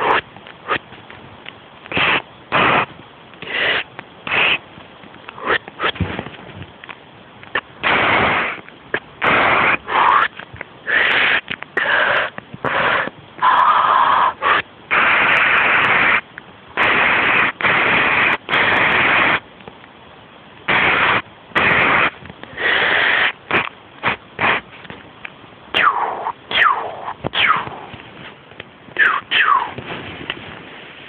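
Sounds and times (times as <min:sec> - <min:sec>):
person making hissing mouth noises: 0:00.0 - 0:00.9, 0:01.9 - 0:04.7, 0:05.3 - 0:06.0, 0:07.8 - 0:16.2, 0:16.8 - 0:19.4, 0:20.7 - 0:24.7, 0:25.7 - 0:28.0, 0:29.0 - 0:30.0.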